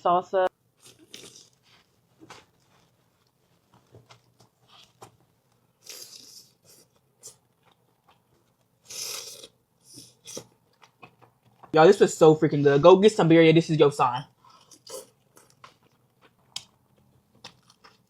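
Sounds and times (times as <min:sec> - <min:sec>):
person chewing: 0:00.8 - 0:03.4, 0:04.1 - 0:11.7, 0:14.4 - 0:18.0
wet mouth clicks: 0:08.9 - 0:11.4.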